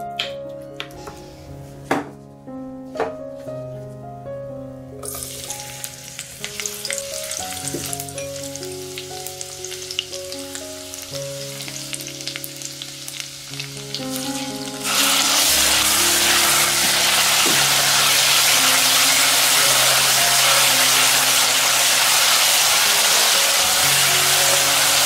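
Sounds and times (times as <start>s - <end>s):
background music: 0.0s - 25.0s
hot oil sizzling and crackling: 5.0s - 25.0s.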